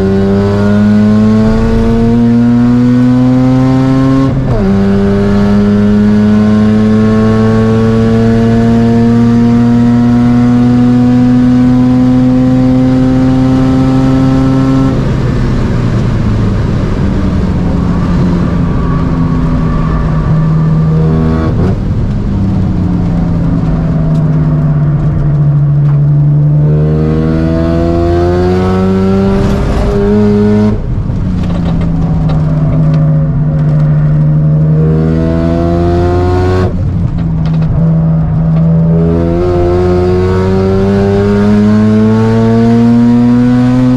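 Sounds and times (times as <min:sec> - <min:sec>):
rotary engine revving: 0:26.5 - 0:43.9.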